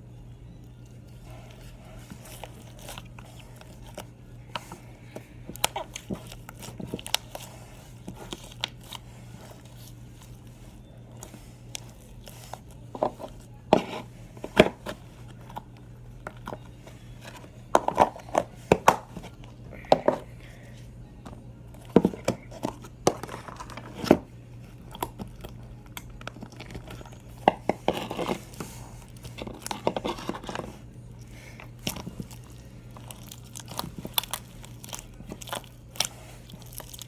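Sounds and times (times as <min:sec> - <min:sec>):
steady low hum: 0:00.0 - 0:37.0
slime crackling and popping: 0:31.6 - 0:37.0.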